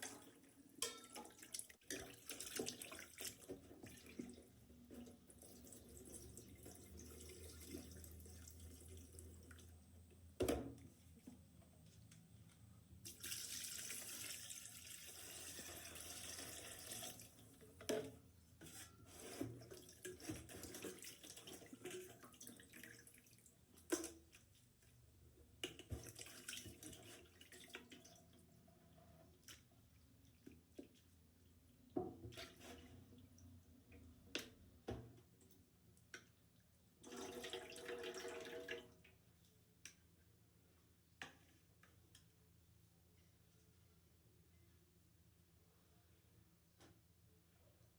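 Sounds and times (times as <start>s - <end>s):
utensils clinking in water: 0.0s - 3.6s.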